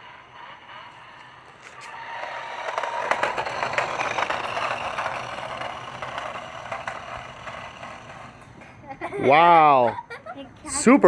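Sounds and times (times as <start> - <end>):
toy car wheels scraping and rattling: 0.0 - 8.8.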